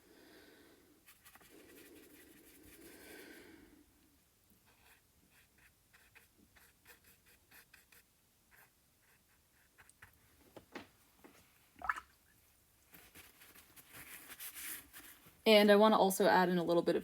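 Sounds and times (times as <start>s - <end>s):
paintbrush tapping and stroking: 1.0s - 3.2s, 4.6s - 12.0s.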